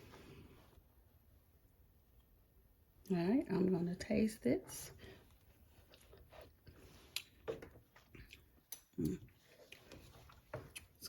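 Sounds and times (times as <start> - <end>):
lip smacks: 5.9 - 10.1.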